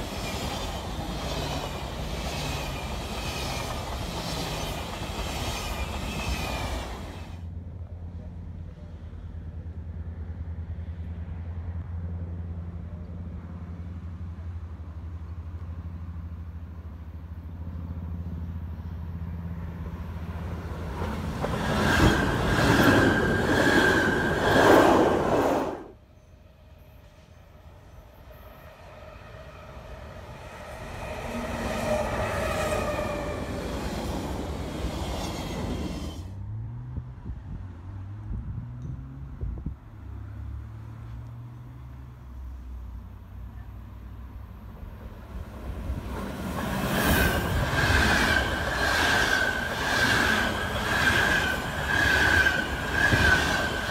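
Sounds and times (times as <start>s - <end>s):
train whine: 0.0s - 36.6s, 44.3s - 53.9s
low train hum: 0.0s - 53.9s.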